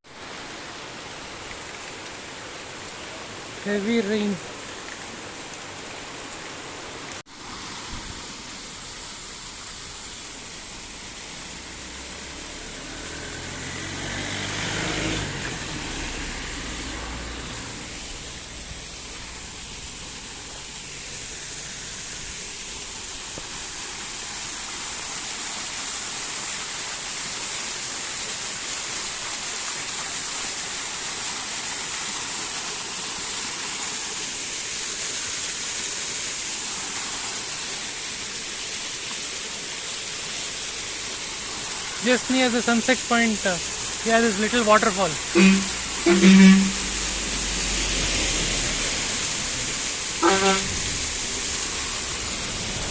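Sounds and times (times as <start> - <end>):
heavy rain falling: 8.8 - 25.0, 40.0 - 52.9
vehicle engine passing: 11.5 - 19.0, 45.2 - 52.9.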